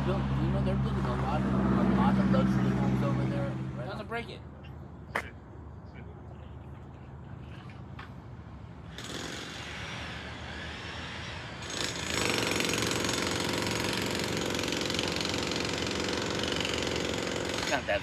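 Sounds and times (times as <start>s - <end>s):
jackhammer hammering: 8.9s - 9.9s, 11.6s - 18.0s.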